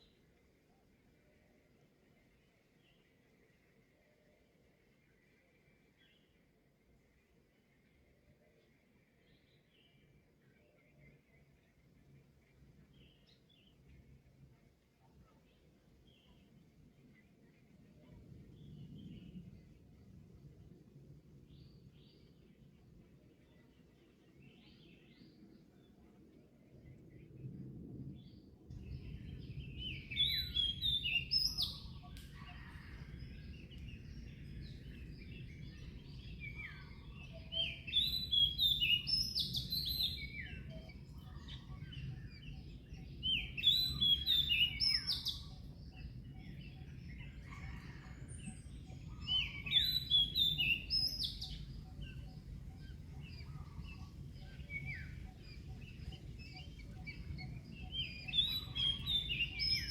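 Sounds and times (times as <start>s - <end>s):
songbird chirping: 0.0s - 59.9s.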